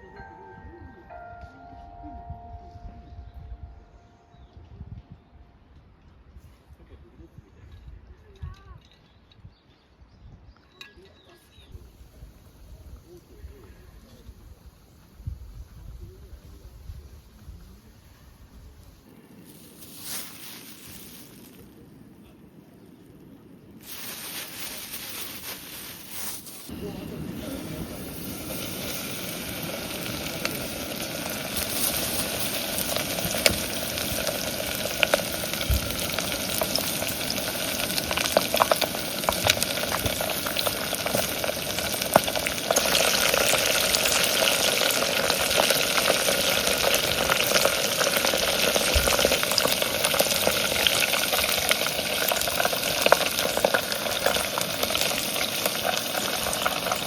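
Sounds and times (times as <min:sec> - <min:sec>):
chicken frying in hot oil: 0:26.7 - 0:57.0.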